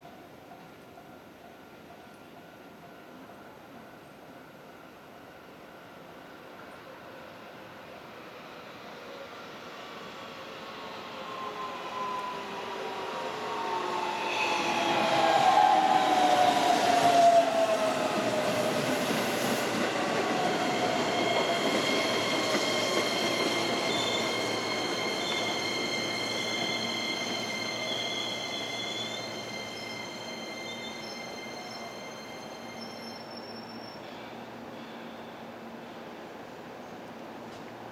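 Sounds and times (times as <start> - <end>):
wheels and brakes squealing: 10.8 - 36.0.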